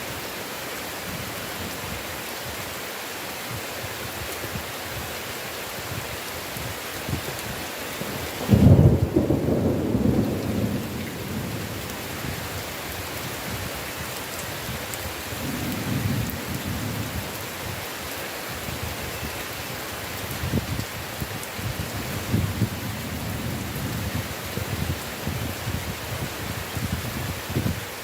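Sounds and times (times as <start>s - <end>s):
heavy rain: 0.0s - 28.0s
thunder: 8.4s - 12.4s, 15.4s - 17.2s.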